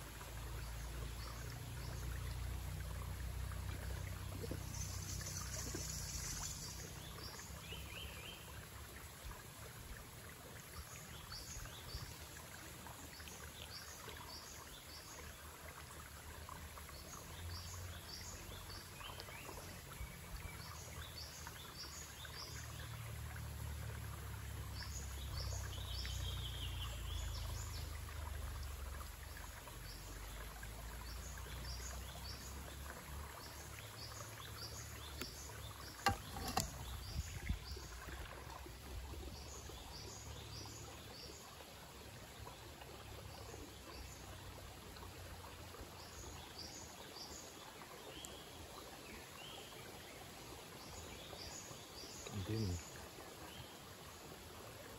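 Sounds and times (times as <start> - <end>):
stream flowing over rocks: 0.0 - 54.9.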